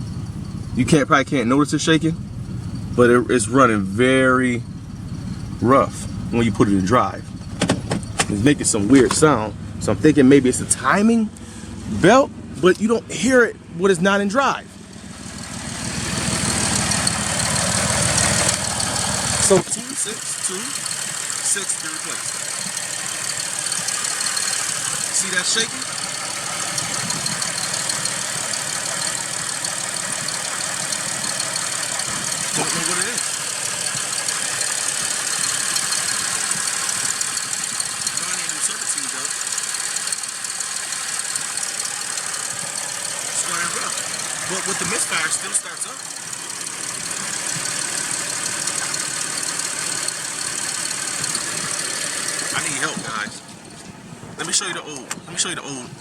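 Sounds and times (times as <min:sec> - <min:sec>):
car engine running rough: 0:00.0 - 0:56.0
constant hiss: 0:17.3 - 0:54.8.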